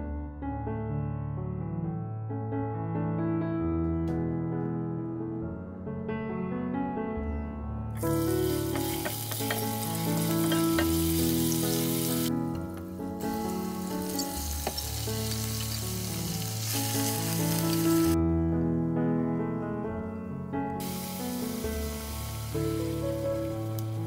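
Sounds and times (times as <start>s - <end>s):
vegetables sizzling in oil: 8.0s - 12.3s, 13.1s - 18.2s, 20.8s - 24.0s
wooden spoon stirring and scraping: 8.2s - 11.0s.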